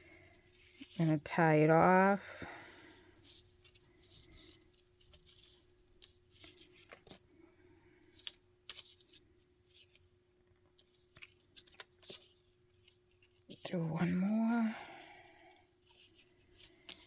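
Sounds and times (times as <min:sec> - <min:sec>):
faint steady hum: 0:00.0 - 0:17.0
paper rustling: 0:02.8 - 0:07.2, 0:08.0 - 0:10.1, 0:10.7 - 0:17.0.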